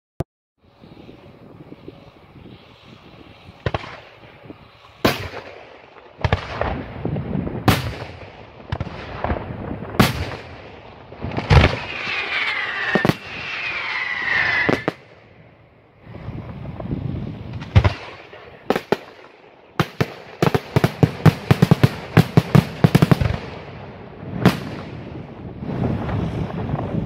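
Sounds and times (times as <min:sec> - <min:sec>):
firework shells bursting: 0:11.2 - 0:15.1
falling firework whistles: 0:11.2 - 0:15.2.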